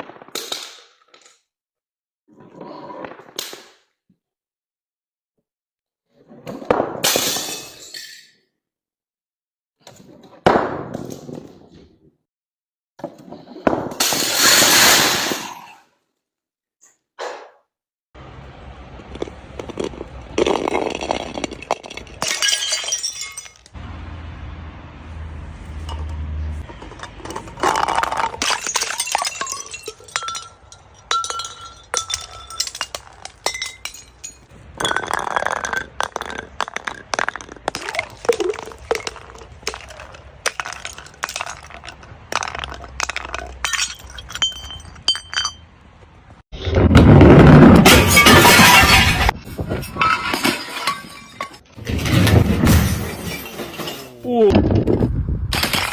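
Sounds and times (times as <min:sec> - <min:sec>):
glass bottles breaking: 0:07.0 - 0:08.3, 0:13.9 - 0:15.6, 0:19.7 - 0:23.8, 0:25.9 - 0:45.8, 0:47.4 - 0:54.4, 0:55.5 - 0:55.9
glass shards clinking: 0:20.4 - 0:23.8, 0:25.8 - 0:45.7, 0:47.9 - 0:51.7, 0:52.9 - 0:54.2.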